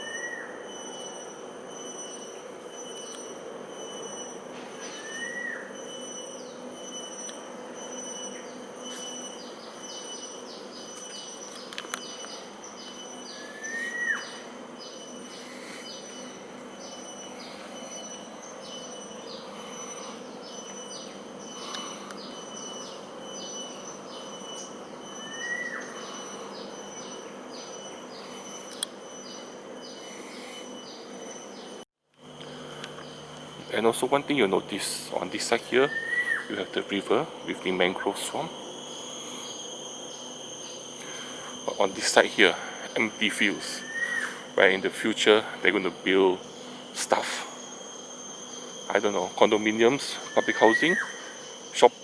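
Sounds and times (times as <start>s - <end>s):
birds calling: 0.0s - 31.8s, 32.4s - 47.3s, 48.4s - 51.9s
insects chirping and buzzing: 0.0s - 52.0s
bird short rising whistle: 4.8s - 5.7s, 13.3s - 14.5s, 35.9s - 36.5s, 43.8s - 44.5s.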